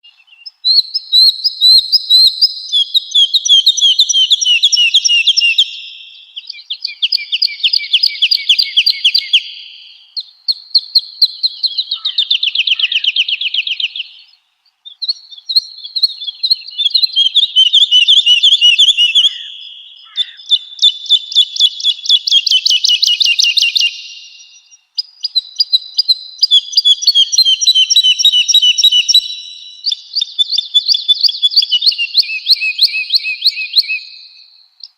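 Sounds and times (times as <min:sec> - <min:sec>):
woodlark singing trilled phrases: 0:00.0 - 0:34.9.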